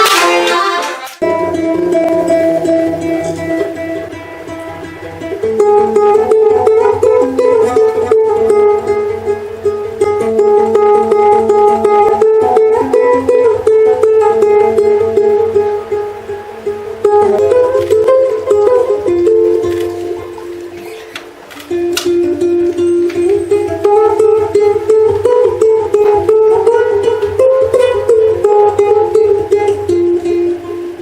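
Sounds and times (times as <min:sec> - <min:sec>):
accordion music: 0:00.0 - 0:01.6.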